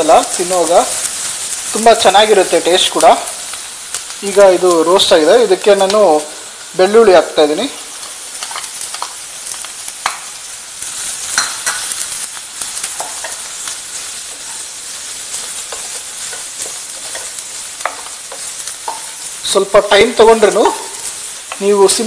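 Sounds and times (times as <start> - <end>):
garlic sizzling in hot oil: 0.0 - 22.0.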